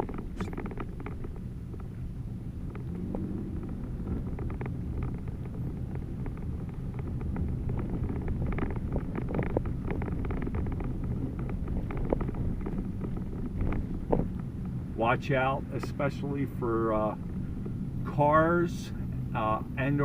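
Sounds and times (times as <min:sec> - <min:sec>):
small crackles: 0:00.0 - 0:14.9
engine and tyres rumbling: 0:00.0 - 0:20.0.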